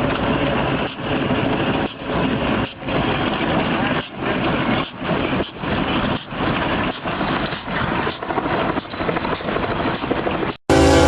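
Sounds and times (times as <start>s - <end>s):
vehicle rushing rumble: 10.5s - 11.0s.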